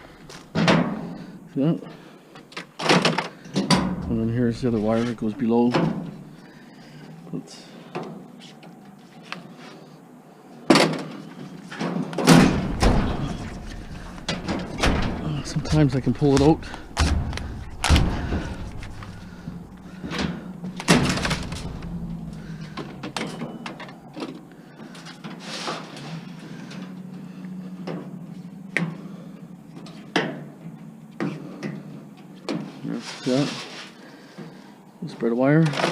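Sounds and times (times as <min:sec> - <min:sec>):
rustling and scraping wiring: 0:02.4 - 0:10.0, 0:10.8 - 0:34.6
steady low hum: 0:03.7 - 0:08.4, 0:12.3 - 0:25.3
heavy thud with low rumble: 0:03.8 - 0:05.2, 0:12.4 - 0:23.3
metal clattering: 0:11.8 - 0:24.0
sharp metal knocks: 0:12.2 - 0:24.0.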